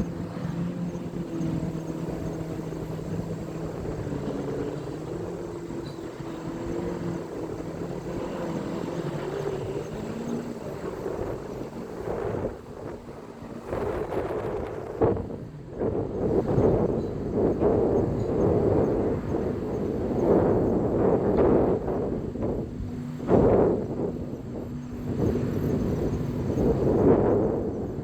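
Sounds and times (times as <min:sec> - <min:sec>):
engine drone: 0:00.0 - 0:28.0.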